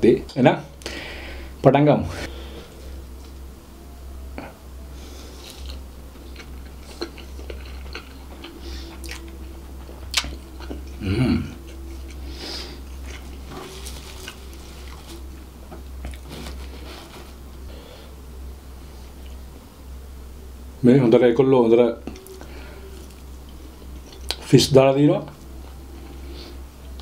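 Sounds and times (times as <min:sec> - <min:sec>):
chewing and biting food: 0:05.4 - 0:11.0, 0:11.6 - 0:15.4
person humming: 0:08.5 - 0:15.3, 0:22.0 - 0:23.6.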